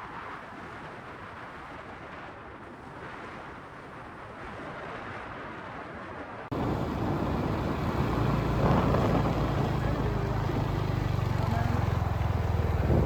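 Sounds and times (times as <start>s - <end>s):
even rushing noise: 6.5s - 13.0s
low engine hum: 6.5s - 13.0s.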